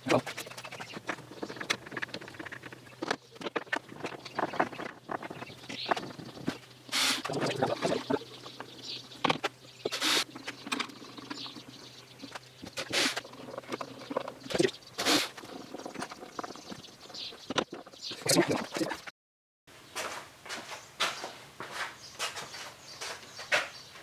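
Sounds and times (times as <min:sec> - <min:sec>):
wooden parts knocking and clicking: 0:00.0 - 0:14.8
scraping and rustling: 0:00.0 - 0:19.1.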